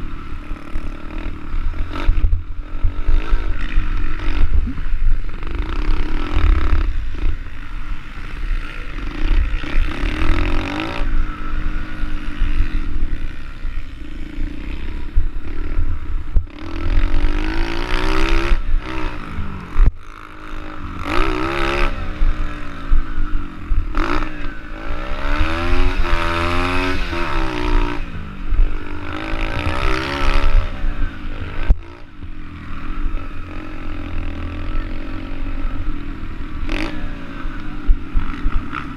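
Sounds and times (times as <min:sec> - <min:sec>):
constant low rumble: 0:00.0 - 0:38.9
motorbike engine revving: 0:00.0 - 0:38.9.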